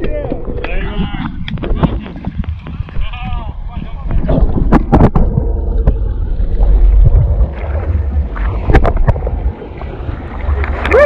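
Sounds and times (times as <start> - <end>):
wind on microphone: 0.0 - 11.0
water rushing past boat: 0.8 - 11.0
sharp knocks or splashes: 7.0 - 9.4.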